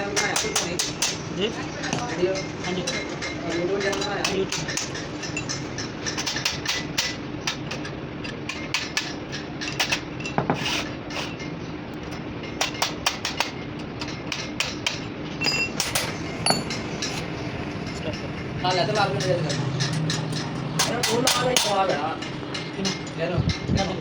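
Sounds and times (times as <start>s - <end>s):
steady low hum: 13.5s - 24.0s
hammer strikes: 14.3s - 17.3s, 17.9s - 23.1s.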